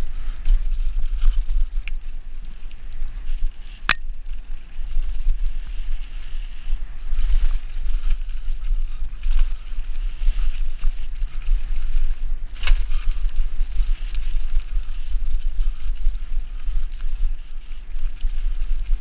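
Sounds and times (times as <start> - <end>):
bike rattles: 0.0 - 19.0
bike rolling on a trail: 0.0 - 19.0.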